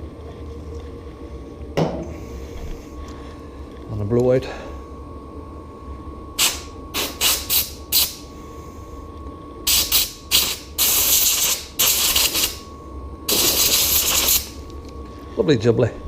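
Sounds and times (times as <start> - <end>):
compressed air hissing: 6.4 - 8.3, 9.6 - 12.7, 13.3 - 14.6.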